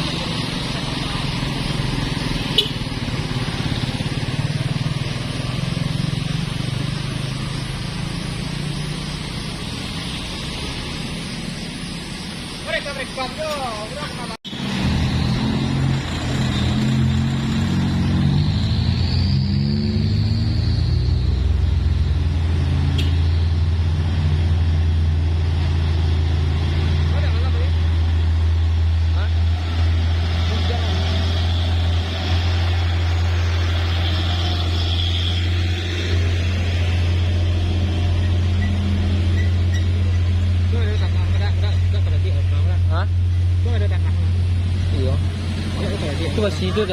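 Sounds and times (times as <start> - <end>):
vehicle engine pulsing hum: 0.0 - 46.9.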